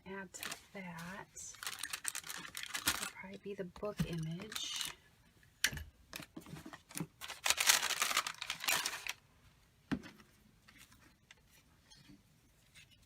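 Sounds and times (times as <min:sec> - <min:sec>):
paper rustling: 0:00.4 - 0:03.1, 0:06.4 - 0:09.2.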